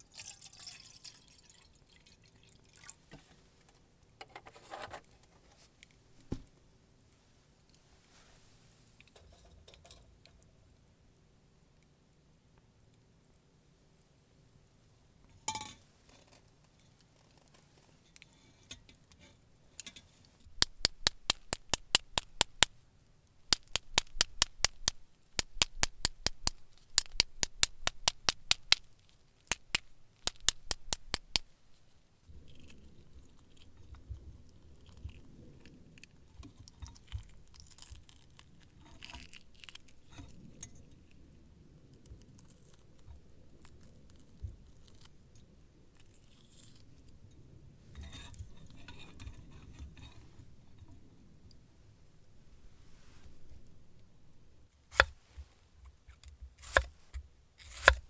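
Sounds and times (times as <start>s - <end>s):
knife chopping on cutting board: 54.9s - 55.2s, 56.6s - 56.9s, 57.6s - 58.0s.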